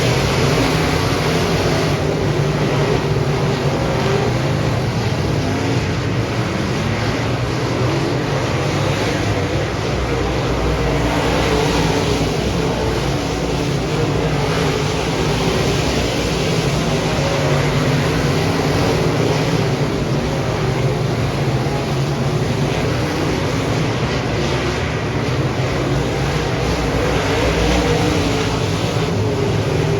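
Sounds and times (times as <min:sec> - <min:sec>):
race car engine running hard: 0:00.0 - 0:29.9.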